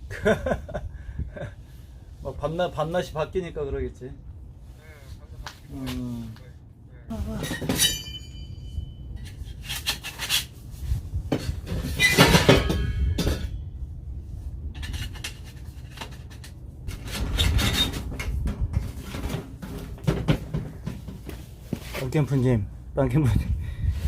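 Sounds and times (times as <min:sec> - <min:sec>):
metal objects clattering: 0:07.4 - 0:08.6, 0:11.3 - 0:13.6.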